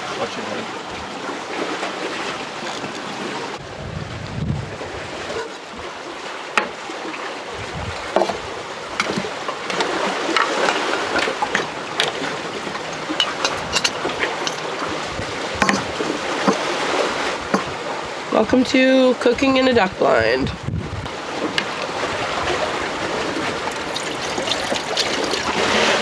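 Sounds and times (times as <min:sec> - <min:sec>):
kayak paddle splashing water: 0:05.3 - 0:18.3, 0:21.1 - 0:26.0.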